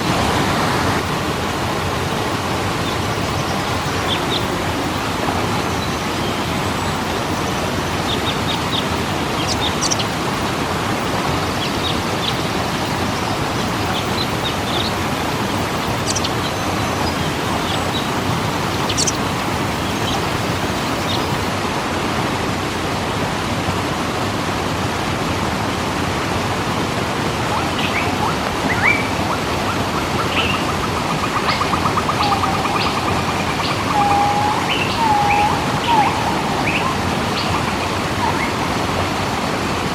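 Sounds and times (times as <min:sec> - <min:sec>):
waterfall rushing: 0:00.0 - 0:39.9
small birds chirping: 0:01.0 - 0:21.5, 0:27.6 - 0:39.9
bird fast trill: 0:15.9 - 0:20.2, 0:30.4 - 0:39.7
low slurred bird whistles: 0:31.4 - 0:38.8.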